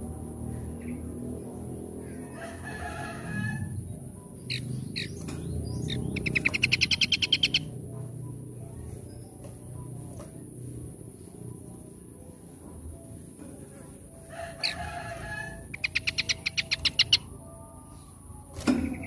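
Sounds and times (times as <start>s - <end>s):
songbird whistles and trill: 4.4s - 7.7s, 14.6s - 17.3s.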